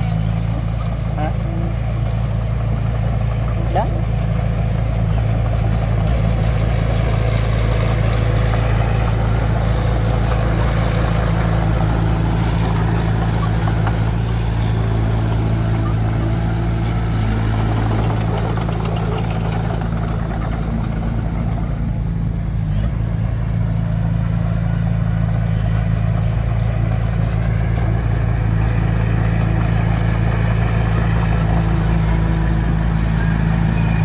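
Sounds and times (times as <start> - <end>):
heavy vehicle engine humming: 0.0 - 34.0.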